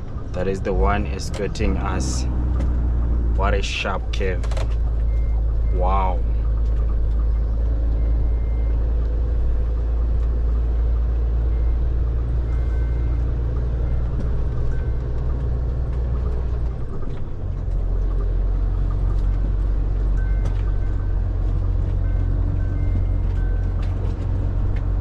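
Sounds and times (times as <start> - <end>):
truck diesel engine droning: 0.0 - 25.0.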